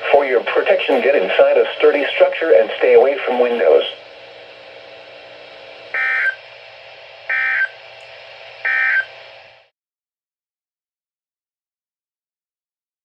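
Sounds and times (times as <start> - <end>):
radio hiss: 0.0 - 4.2
data tone bursts: 6.0 - 6.4, 7.3 - 7.7, 8.7 - 9.1.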